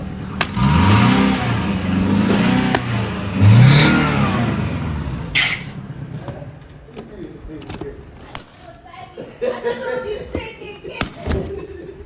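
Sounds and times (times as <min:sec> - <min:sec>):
car engine revving: 0:00.0 - 0:06.9.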